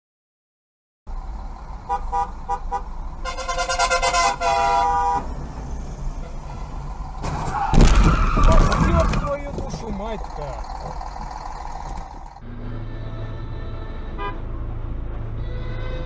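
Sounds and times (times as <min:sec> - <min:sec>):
road noise: 0:01.1 - 0:16.0
car horn honking: 0:01.9 - 0:05.4, 0:06.2 - 0:06.9, 0:14.1 - 0:14.5
loud crash: 0:07.2 - 0:10.0.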